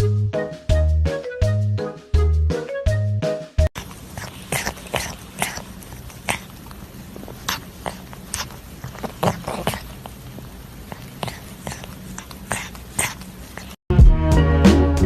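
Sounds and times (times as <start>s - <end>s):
pet animal making sharp noises: 3.8s - 13.8s.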